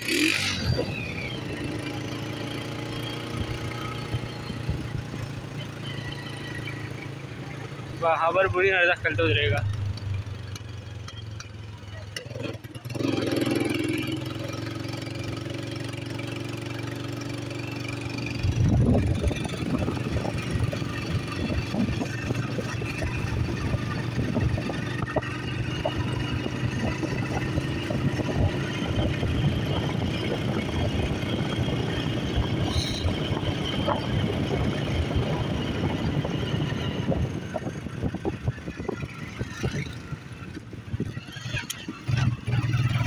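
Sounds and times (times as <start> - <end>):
rough road or wind noise: 0.0 - 43.0
vehicle engine hum: 0.0 - 43.0.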